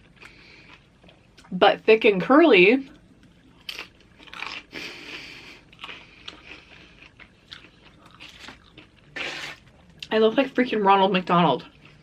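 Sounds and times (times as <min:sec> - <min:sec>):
chewing mouth sounds: 0:03.2 - 0:10.1.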